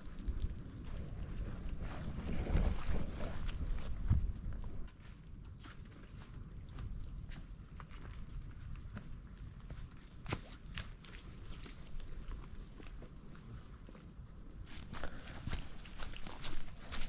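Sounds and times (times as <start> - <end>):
wind rumble on microphone: 0.0 - 4.9
footsteps crunching on trail: 0.0 - 17.0.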